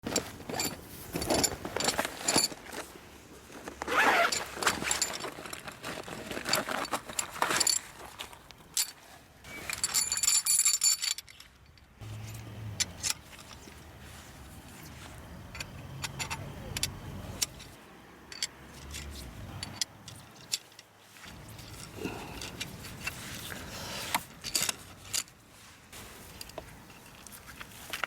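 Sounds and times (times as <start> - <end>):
zipper-like scraping pulls: 3.8 - 5.1
light metallic jingling: 8.7 - 23.5.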